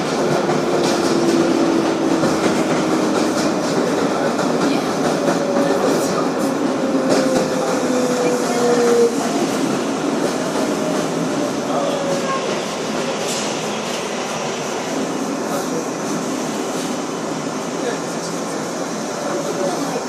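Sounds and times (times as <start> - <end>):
subway train running on rails: 0.0 - 20.0.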